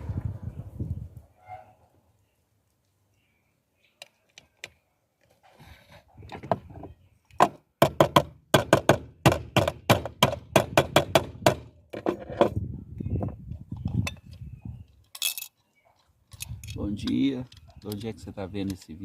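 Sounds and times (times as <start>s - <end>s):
faint scraping: 5.3s - 6.3s.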